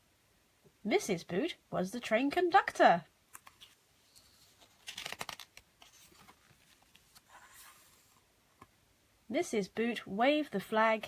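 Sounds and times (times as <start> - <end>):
page turning: 3.3 - 8.3.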